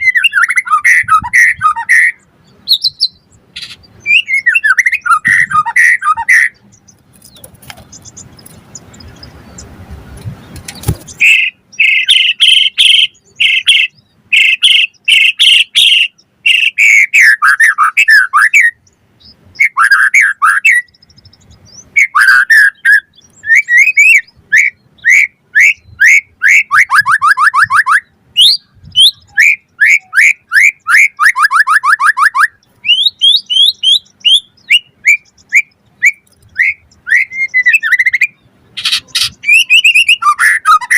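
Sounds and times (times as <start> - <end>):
songbird singing varied whistles: 0.0 - 9.7, 10.7 - 40.9
low rustling noise: 6.6 - 11.2.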